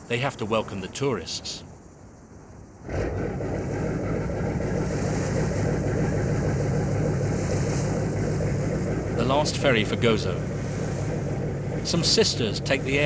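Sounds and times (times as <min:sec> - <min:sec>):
ferry engine droning: 0:02.8 - 0:13.0.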